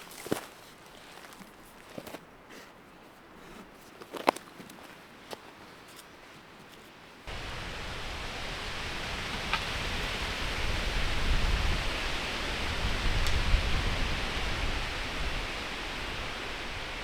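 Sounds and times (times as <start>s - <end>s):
wind gusting through trees: 5.2s - 17.0s
wind buffeting microphone: 7.3s - 17.0s.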